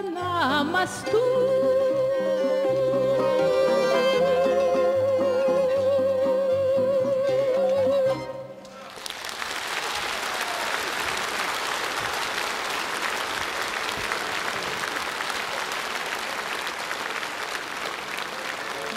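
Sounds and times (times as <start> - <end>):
audience applauding: 8.7 - 18.9.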